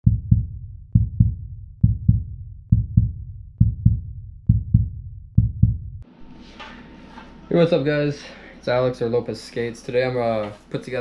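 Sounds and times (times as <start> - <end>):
heartbeat thumps: 0.0 - 6.0.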